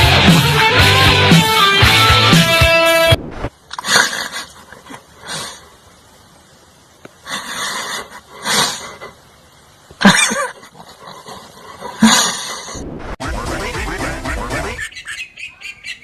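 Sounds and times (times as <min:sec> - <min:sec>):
animal breathy noises: 0:10.6 - 0:12.9.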